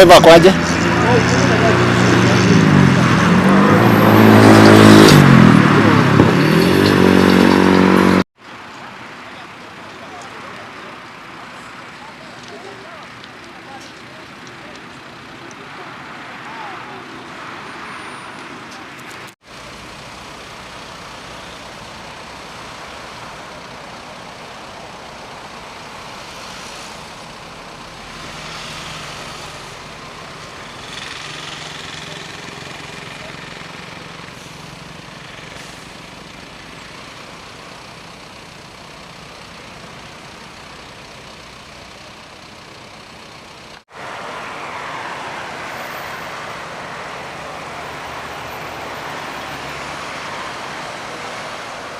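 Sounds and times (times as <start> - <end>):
vehicle engine passing: 0.0 - 8.3, 43.9 - 51.9
highway traffic: 0.0 - 51.9.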